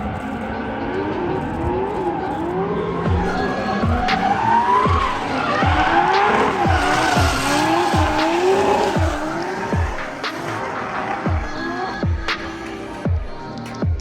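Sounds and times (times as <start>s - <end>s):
car engines revving: 0.0s - 13.7s
tyres squealing: 1.1s - 13.0s
electronic music with heavy kick: 3.0s - 14.0s.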